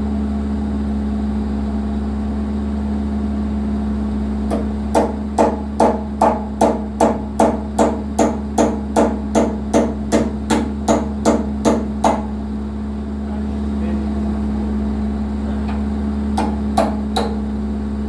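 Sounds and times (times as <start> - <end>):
diesel engine running: 0.0 - 18.0
hammer striking rhythmically: 4.5 - 12.4, 16.4 - 17.5.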